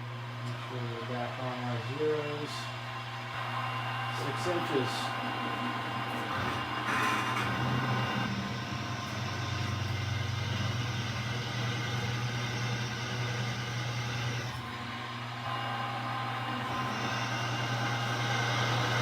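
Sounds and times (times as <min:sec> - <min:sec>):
milling machine motor hum: 0:00.0 - 0:19.0
drill bit cutting steel: 0:15.5 - 0:19.0.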